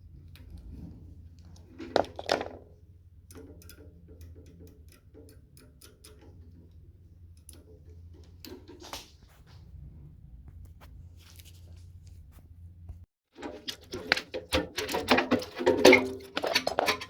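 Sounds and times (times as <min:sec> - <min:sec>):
low steady hum: 0:00.0 - 0:13.1
light clicks and ticks: 0:03.2 - 0:09.1.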